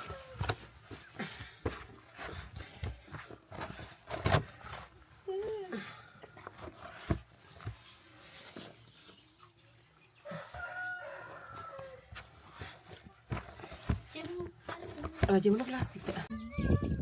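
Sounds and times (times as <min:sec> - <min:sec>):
rooster crowing: 0:10.2 - 0:12.0.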